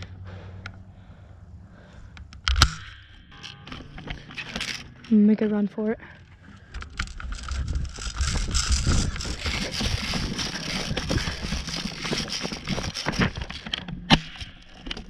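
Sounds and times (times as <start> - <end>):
rustling and rumbling from running: 3.8 - 15.0.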